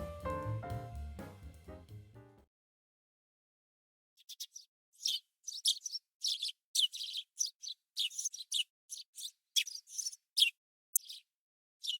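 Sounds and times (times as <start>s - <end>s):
small bird chirping: 4.2s - 11.9s.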